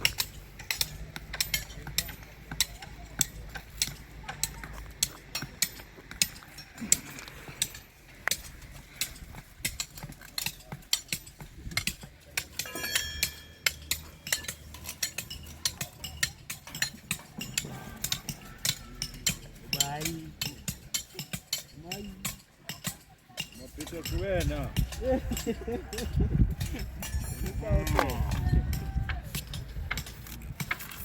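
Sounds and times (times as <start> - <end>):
metal clicks of steel bars: 0.0 - 31.0.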